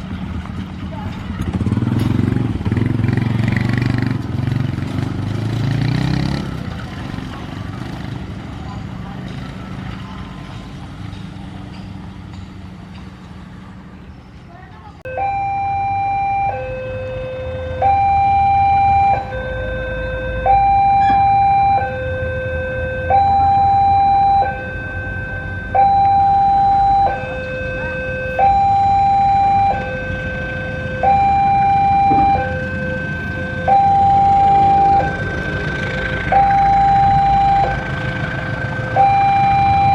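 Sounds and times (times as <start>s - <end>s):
two-tone crossing alarm: 15.1s - 39.9s.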